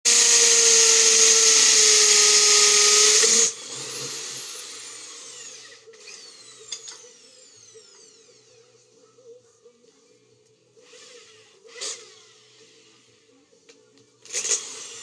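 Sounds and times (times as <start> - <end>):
power drill whining: 0.1 - 8.3, 14.3 - 15.0.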